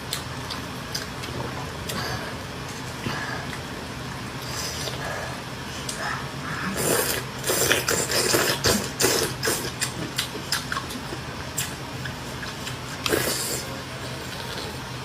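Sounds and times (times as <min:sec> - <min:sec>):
chewing crunchy food: 0:06.7 - 0:14.9.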